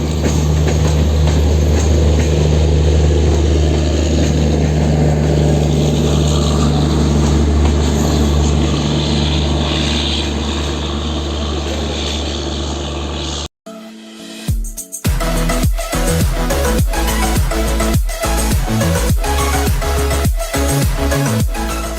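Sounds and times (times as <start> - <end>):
train rumbling past: 0.0 - 13.5.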